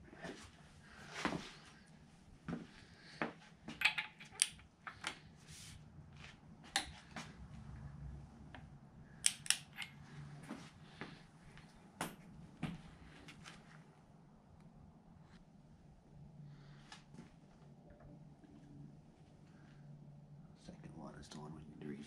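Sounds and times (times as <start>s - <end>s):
low steady hum: 0.0s - 22.0s
tools and parts clinking: 3.7s - 5.2s, 9.2s - 10.0s.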